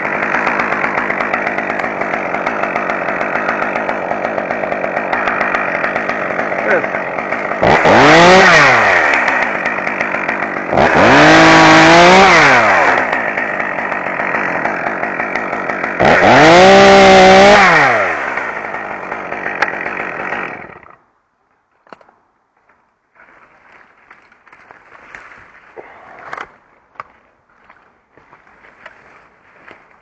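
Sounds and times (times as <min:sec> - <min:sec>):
chainsaw engine revving: 0:00.0 - 0:21.0.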